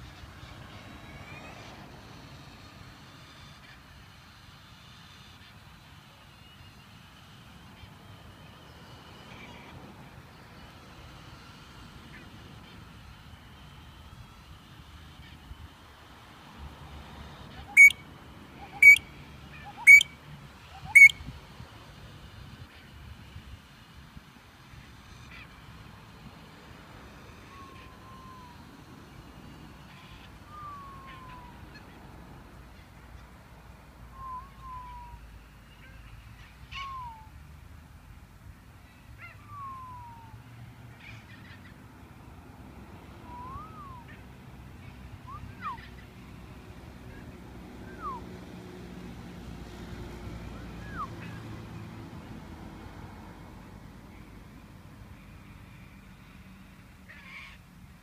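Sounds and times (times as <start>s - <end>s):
magpie-lark sharp calls: 17.5s - 18.0s, 18.6s - 21.3s
bird whistling: 17.6s - 18.0s, 18.6s - 21.2s, 30.4s - 31.6s, 34.1s - 35.3s, 36.8s - 37.3s, 39.3s - 40.4s, 43.2s - 44.2s, 45.2s - 46.0s, 47.8s - 48.3s, 50.8s - 51.4s.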